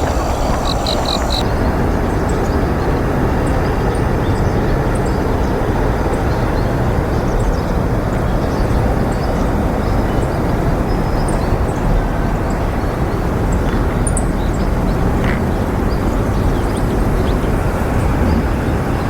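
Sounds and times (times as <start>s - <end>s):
loud outdoor rumble: 0.0s - 19.0s.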